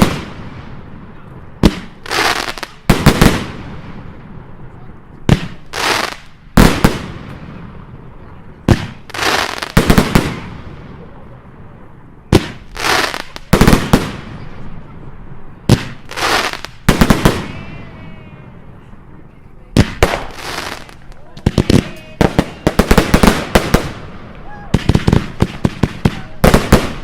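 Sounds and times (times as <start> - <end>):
fireworks bangs: 0.0 - 11.3, 12.2 - 18.3, 19.7 - 27.0.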